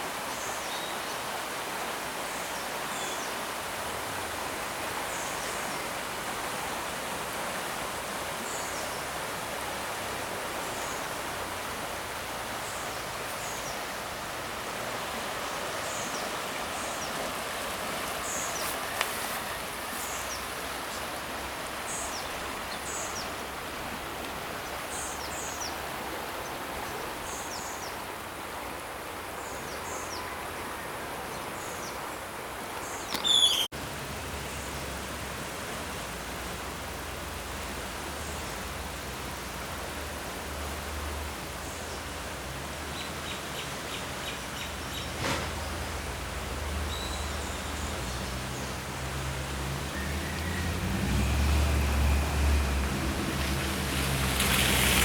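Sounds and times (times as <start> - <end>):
flooded river rushing: 0.0 - 55.0
bird descending calls: 33.1 - 33.7.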